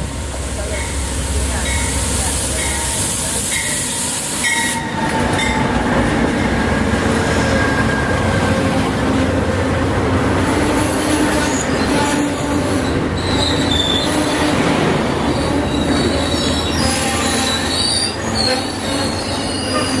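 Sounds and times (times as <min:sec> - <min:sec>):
train cars rumbling: 0:00.0 - 0:20.0
train wheel squeals: 0:01.7 - 0:08.4, 0:11.2 - 0:14.6, 0:15.3 - 0:20.0.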